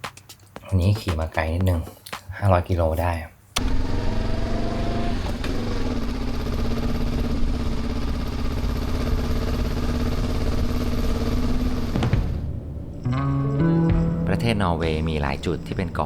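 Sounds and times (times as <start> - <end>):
motorcycle engine running: 3.6 - 13.1.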